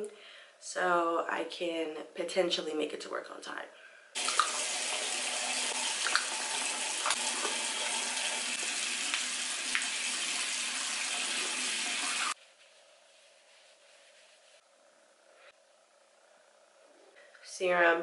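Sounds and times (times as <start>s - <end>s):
water running from sink tap: 4.2s - 12.4s.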